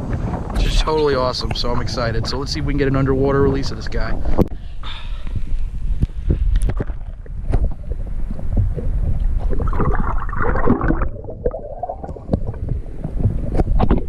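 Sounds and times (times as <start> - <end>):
water sloshing and gurgling: 5.8 - 14.0.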